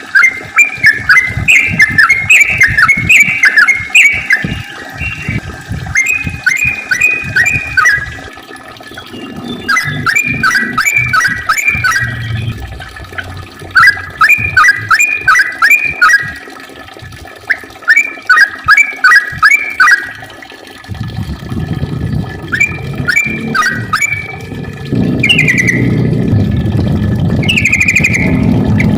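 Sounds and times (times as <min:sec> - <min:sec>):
bird chattering song: 0:08.9 - 0:12.7, 0:25.2 - 0:26.0, 0:27.4 - 0:28.9.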